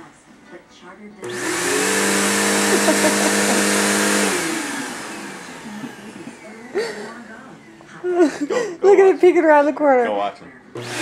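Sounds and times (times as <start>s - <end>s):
vacuum cleaner running: 1.2s - 8.5s, 10.7s - 11.0s.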